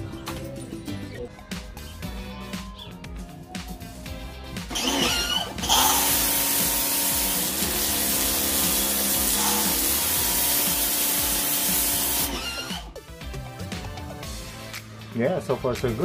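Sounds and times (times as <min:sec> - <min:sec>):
pressure washer spray hiss: 0:05.7 - 0:12.3.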